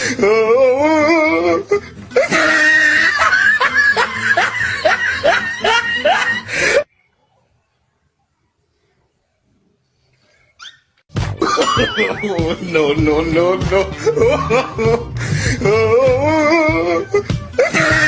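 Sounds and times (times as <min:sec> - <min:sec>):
background music: 0:00.0 - 0:06.9, 0:11.1 - 0:18.0
person laughing: 0:00.9 - 0:06.8, 0:11.4 - 0:18.0.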